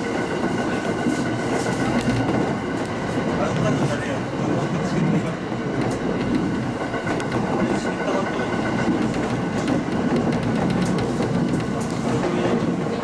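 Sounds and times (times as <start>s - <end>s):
rail joint clicks: 0.0s - 13.0s
train wheels rumbling on rail: 0.0s - 13.0s.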